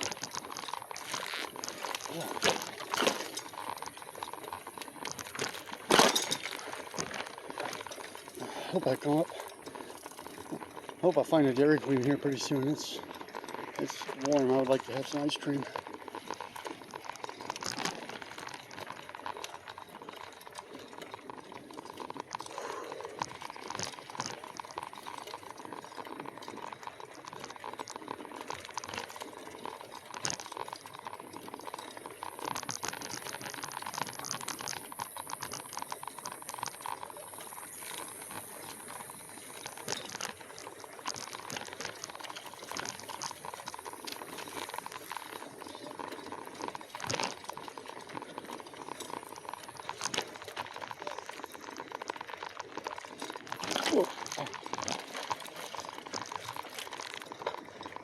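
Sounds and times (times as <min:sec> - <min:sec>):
small clicks: 0:00.0 - 0:58.0
tyres rattling on rough trail: 0:00.0 - 0:58.0.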